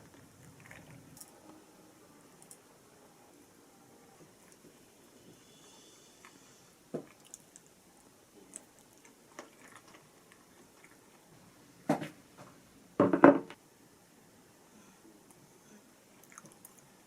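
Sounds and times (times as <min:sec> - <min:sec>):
tableware knocks and clatters: 0:13.0 - 0:13.6.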